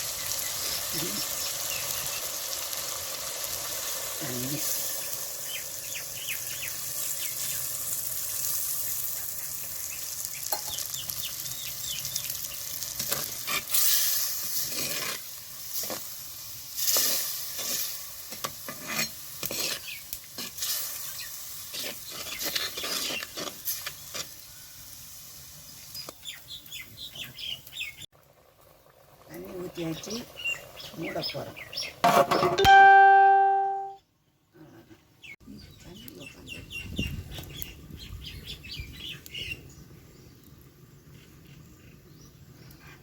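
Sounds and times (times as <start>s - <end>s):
chicken sizzling in a pan: 0.0s - 32.0s
spoon scraping a pan: 13.0s - 15.2s, 16.8s - 24.4s.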